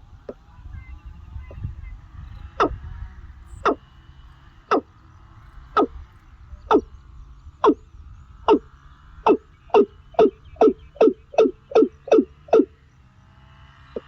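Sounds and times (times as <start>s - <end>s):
steady low rumble: 0.0s - 12.8s
bird short sharp calls: 0.2s - 2.8s, 4.6s - 5.0s, 7.6s - 7.8s, 8.4s - 12.8s.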